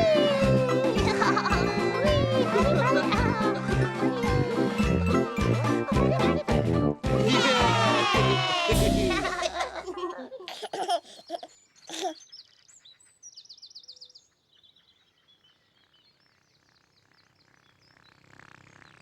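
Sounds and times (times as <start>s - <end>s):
birds chirping and trilling: 10.7s - 19.0s.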